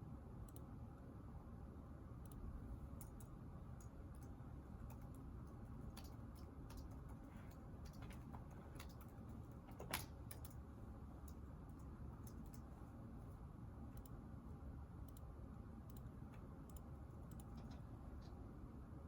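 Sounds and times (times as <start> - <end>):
low room noise: 0.0 - 19.0
computer keyboard typing: 2.3 - 10.6, 15.0 - 17.9.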